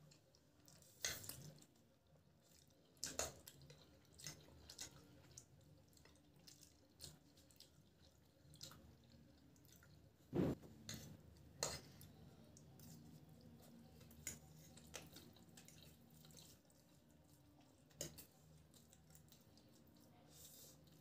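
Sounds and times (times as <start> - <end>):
people eating noodles: 10.6 - 21.0.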